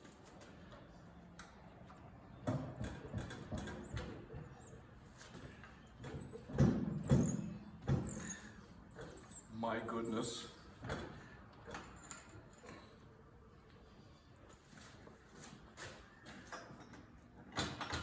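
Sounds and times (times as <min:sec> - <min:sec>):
dull clunks and knocks of metal parts: 0:02.3 - 0:09.4, 0:10.7 - 0:12.9, 0:15.4 - 0:18.0.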